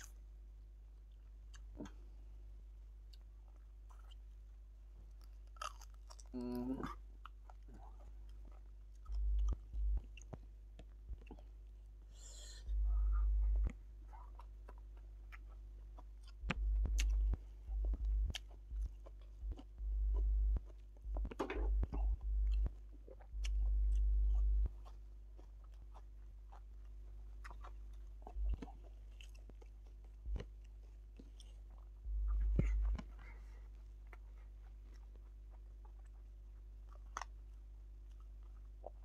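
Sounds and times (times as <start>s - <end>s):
chewing and mouth clicks: 3.0s - 4.4s, 5.0s - 11.8s, 12.7s - 39.0s
loud low rumbles: 9.1s - 10.1s, 12.5s - 13.8s, 16.4s - 24.8s, 28.2s - 28.8s, 32.0s - 33.6s.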